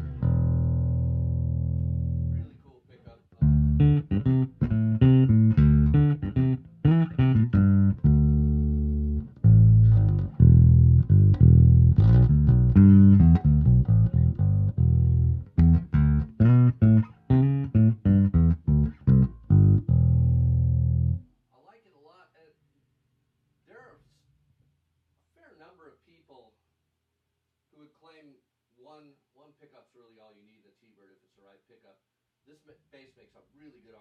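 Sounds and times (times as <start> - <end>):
electric bass plucked notes: 0.0 - 2.4, 3.4 - 21.3.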